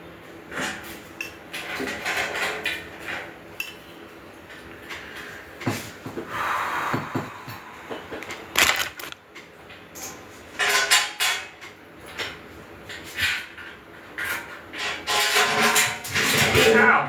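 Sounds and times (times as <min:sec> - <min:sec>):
metal grill parts clanking: 0:08.6 - 0:09.2.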